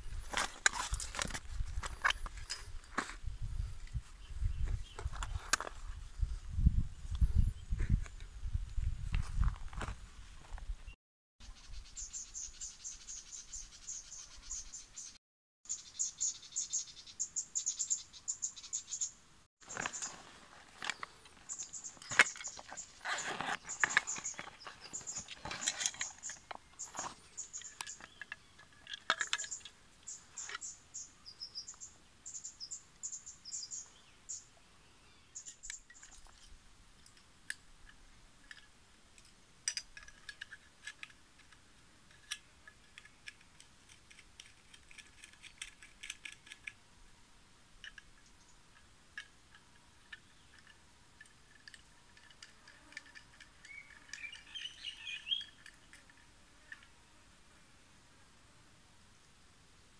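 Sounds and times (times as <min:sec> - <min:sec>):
birds chirping: 0:11.4 - 0:36.4, 0:53.5 - 0:56.0.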